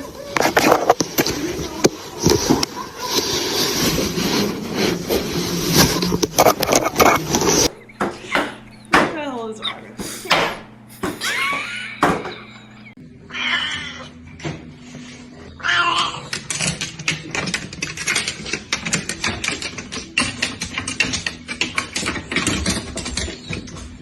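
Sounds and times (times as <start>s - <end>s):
cat meowing: 13.2s - 14.2s, 15.6s - 16.3s
rapid sharp clicks and rattling: 16.3s - 23.5s.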